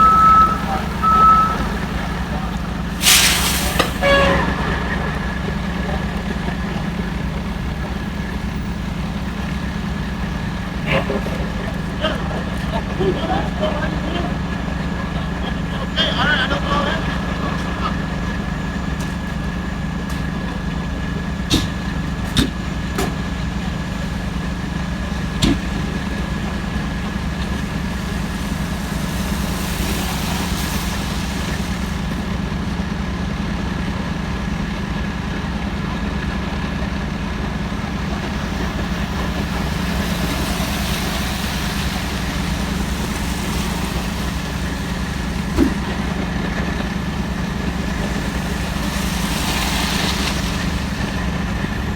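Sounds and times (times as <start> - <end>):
thin high whine: 0.0 - 12.2, 24.4 - 32.6, 37.6 - 51.9
truck engine idling: 0.0 - 51.9.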